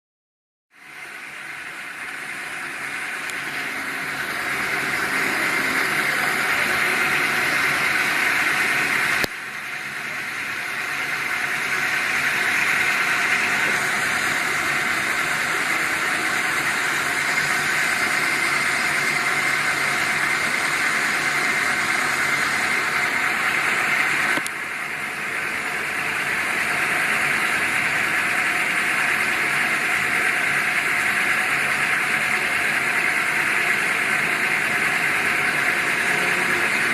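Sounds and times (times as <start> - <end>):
lathe running with hissing noise: 0.8 - 36.9.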